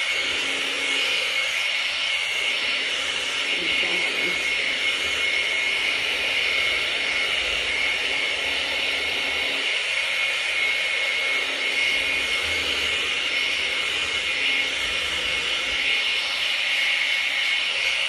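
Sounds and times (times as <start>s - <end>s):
hair dryer blowing: 0.0s - 18.0s.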